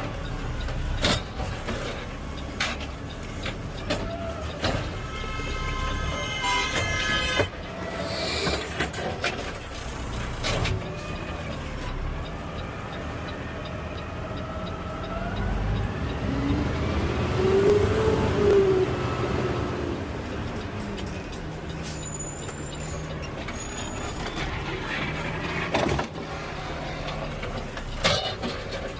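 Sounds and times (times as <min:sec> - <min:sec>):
horn-like tone: 0:05.0 - 0:07.5.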